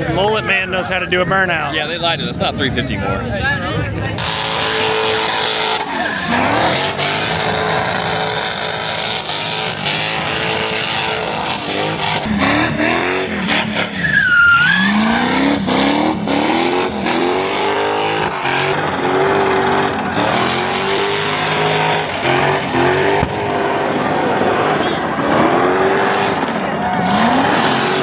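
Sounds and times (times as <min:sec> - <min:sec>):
car engine revving hard: 0:04.2 - 0:28.0
spinning tyres hissing: 0:04.2 - 0:28.0
tyre squeal: 0:13.5 - 0:16.2.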